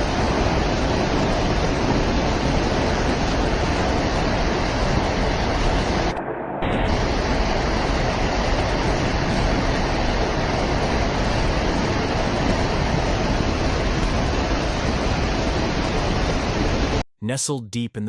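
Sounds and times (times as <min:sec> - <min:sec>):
loud rushing rumble: 0:00.0 - 0:17.0.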